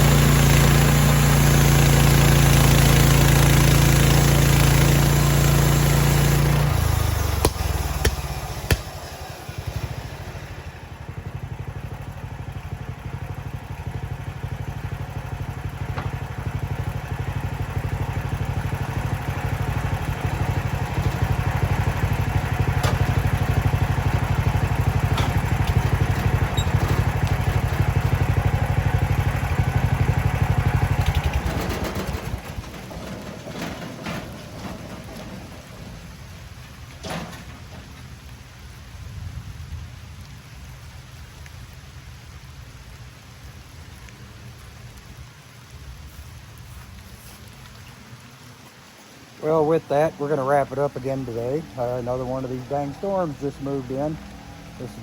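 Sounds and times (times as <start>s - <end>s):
gasoline engine chugging: 0.0s - 38.2s, 49.4s - 55.0s.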